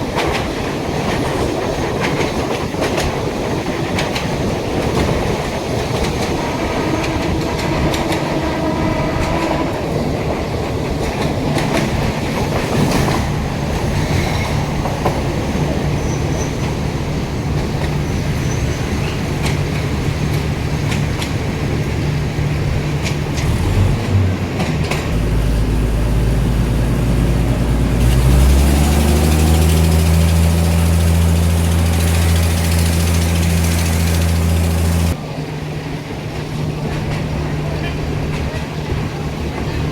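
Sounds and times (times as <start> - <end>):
train engine hum: 0.0 - 39.9
train wheels on rails: 0.0 - 39.9.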